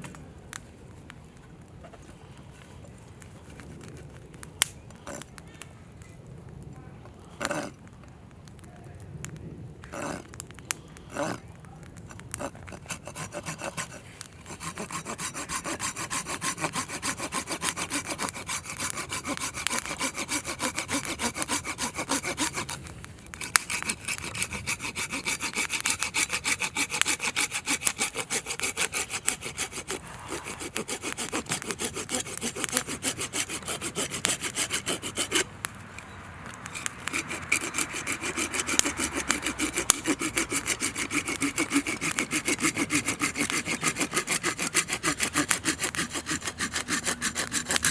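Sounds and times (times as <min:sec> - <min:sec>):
hand saw cutting wood: 0:07.4 - 0:07.7, 0:09.9 - 0:11.4, 0:12.1 - 0:47.9.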